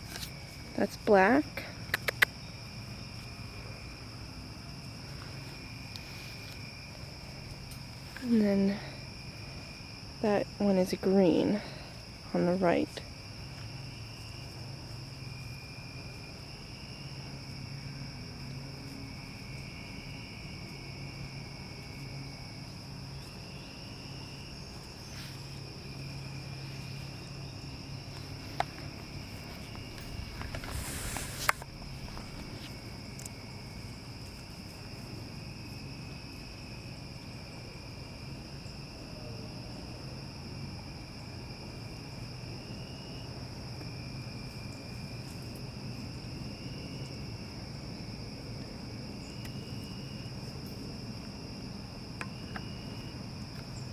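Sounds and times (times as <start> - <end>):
high-pitched insect chorus: 0.0 - 53.9
sharp click: 1.9 - 2.3
low hum: 24.7 - 34.1
brief rustle: 28.5 - 33.3.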